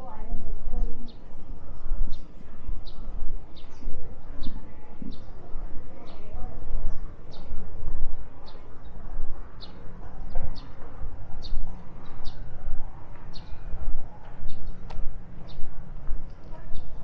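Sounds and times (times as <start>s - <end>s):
steady low rumble: 0.0s - 17.0s
bird chirping: 8.4s - 15.8s.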